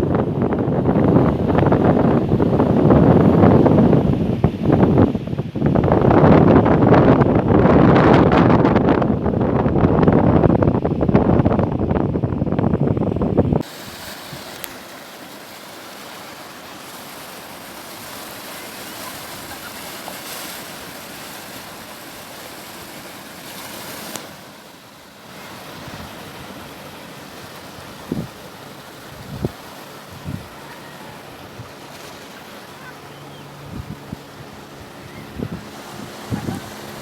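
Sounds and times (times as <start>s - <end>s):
wind buffeting microphone: 0.0s - 14.9s, 25.3s - 37.0s
breaking sea waves: 0.0s - 37.0s.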